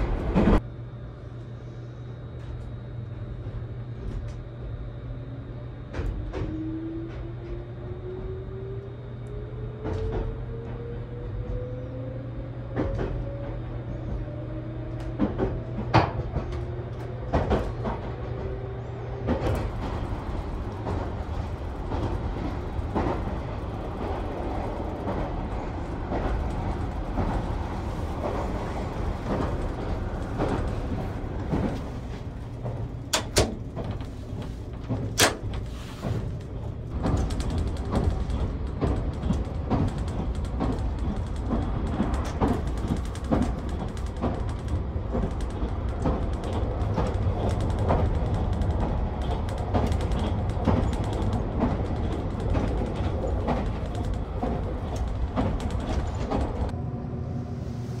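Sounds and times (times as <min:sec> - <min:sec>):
train low rumble: 0:00.0 - 0:58.0
sharp clicks and knocks: 0:32.5 - 0:56.8.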